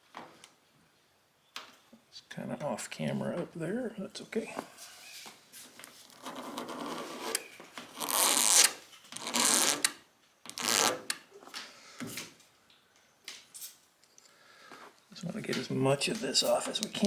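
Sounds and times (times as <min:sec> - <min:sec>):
razor blade scraping paint: 0:06.0 - 0:09.9.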